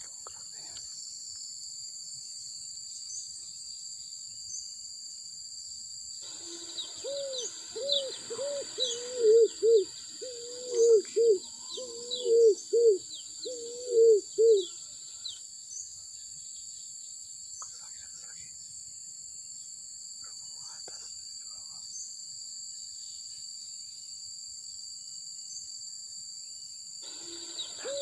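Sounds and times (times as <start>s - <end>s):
high-pitched insect drone: 6.2s - 15.9s, 26.3s - 28.0s
small birds chirping: 6.2s - 18.8s, 27.0s - 28.0s
bird cooing: 6.3s - 14.8s, 27.1s - 28.0s.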